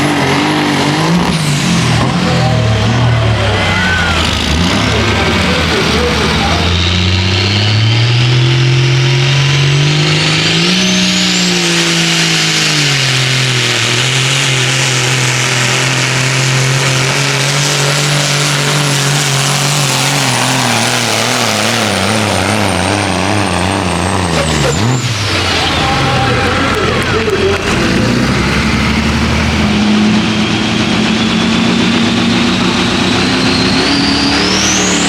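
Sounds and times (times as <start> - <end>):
truck diesel engine revving: 0.0 - 35.0
high whistle: 32.5 - 35.0.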